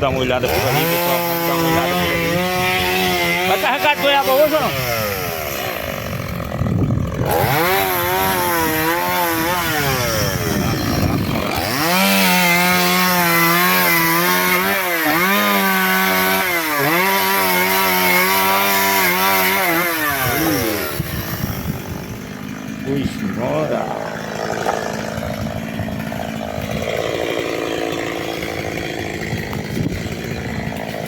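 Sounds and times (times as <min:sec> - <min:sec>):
chainsaw engine revving: 0:00.0 - 0:31.0.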